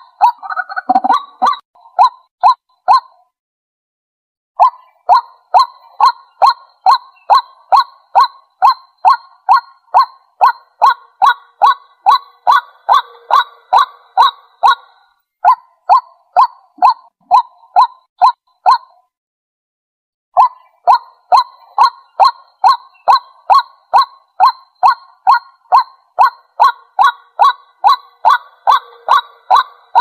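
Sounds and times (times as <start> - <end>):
waterhen calling: 4.6 - 15.0, 20.4 - 30.0.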